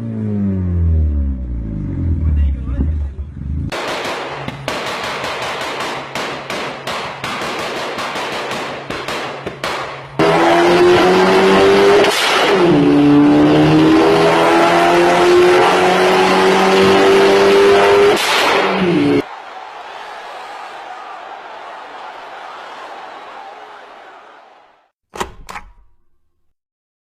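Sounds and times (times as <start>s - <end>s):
car engine accelerating: 0.0s - 3.7s, 10.2s - 19.2s.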